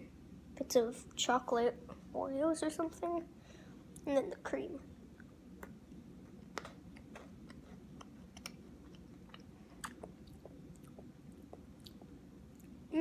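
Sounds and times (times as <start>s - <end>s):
person chewing biscuit stick: 5.2s - 12.8s.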